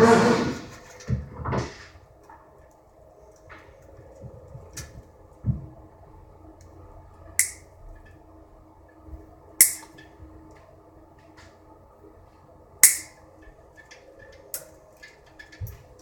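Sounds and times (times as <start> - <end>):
sharp metallic clicks: 7.4 - 7.7, 9.6 - 9.9, 12.8 - 13.2.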